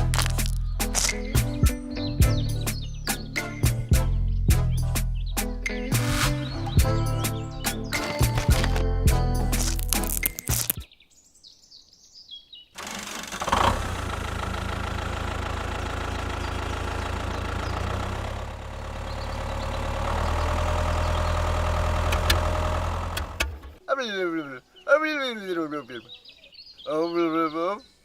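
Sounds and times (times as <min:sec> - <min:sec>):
small engine running: 0:12.8 - 0:23.8
faint bird chirps: 0:23.8 - 0:28.0.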